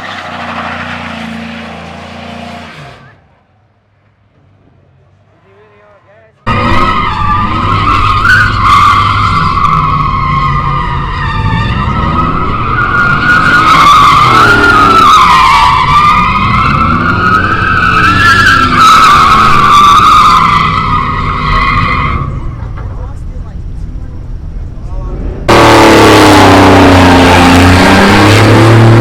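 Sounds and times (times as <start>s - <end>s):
car tyres squealing: 0.0s - 3.4s, 5.8s - 23.2s, 25.4s - 29.0s
car engine revving: 6.5s - 29.0s.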